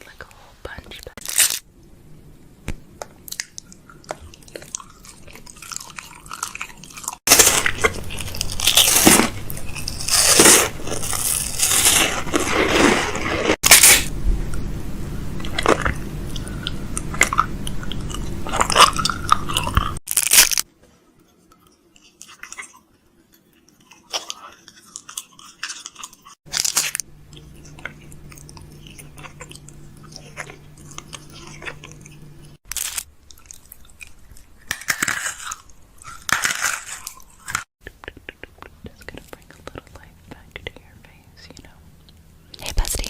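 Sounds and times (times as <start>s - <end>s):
food packaging crunching: 1.2s - 1.6s, 4.3s - 14.1s, 17.1s - 20.7s, 24.2s - 37.7s.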